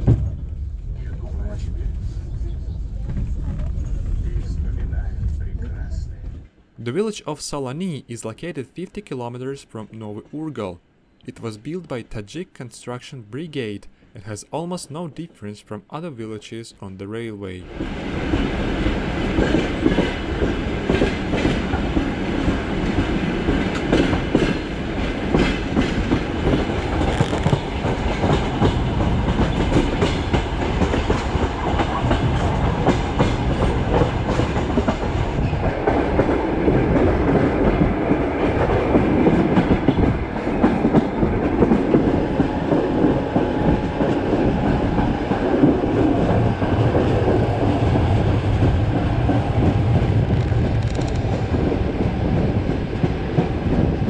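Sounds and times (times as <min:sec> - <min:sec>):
train wheels rumbling on rails: 0:00.0 - 0:06.7, 0:17.6 - 0:54.0
wheels clacking on rails: 0:17.7 - 0:54.0.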